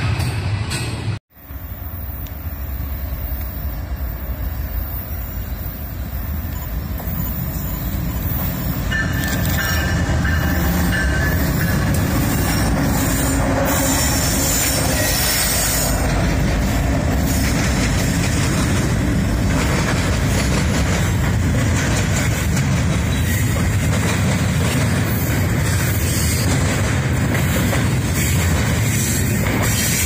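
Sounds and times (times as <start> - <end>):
diesel locomotives passing: 0.0 - 30.0
high wheel squeal: 1.7 - 16.2
wheels clicking over rail joints: 6.4 - 30.0.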